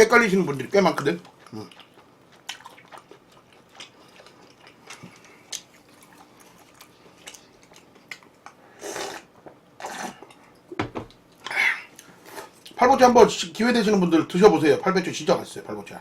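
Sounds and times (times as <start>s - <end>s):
chewing mouth smacks: 1.2s - 9.3s.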